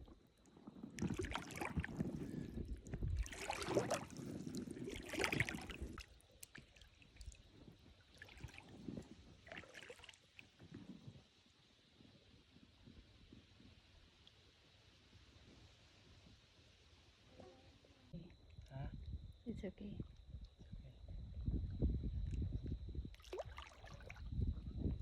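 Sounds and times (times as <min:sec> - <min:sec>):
water splashing and sloshing: 0:00.6 - 0:10.9, 0:23.1 - 0:24.5.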